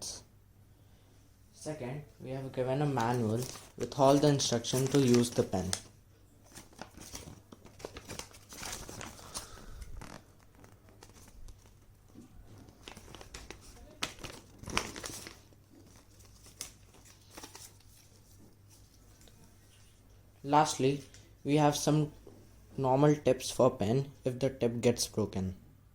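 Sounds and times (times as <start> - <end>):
packaging crinkling and rustling: 2.9 - 20.0.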